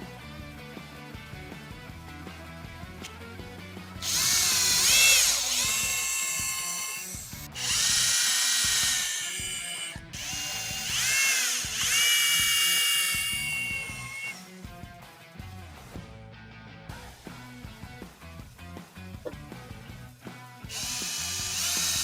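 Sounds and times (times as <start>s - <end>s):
power drill motor whine: 4.0s - 14.6s, 20.7s - 22.0s.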